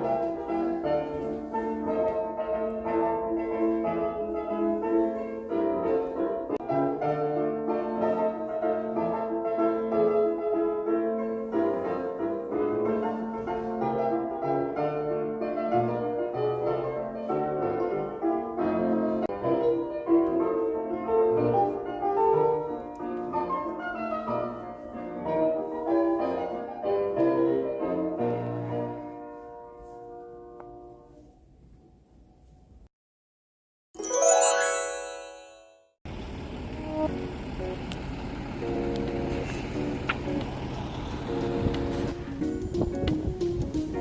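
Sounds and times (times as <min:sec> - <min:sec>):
piano music: 0:00.0 - 0:31.0, 0:34.0 - 0:36.0.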